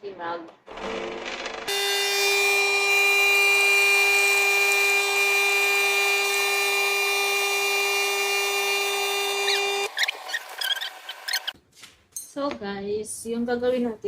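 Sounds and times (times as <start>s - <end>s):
espresso machine pump buzzing: 0.7s - 11.6s.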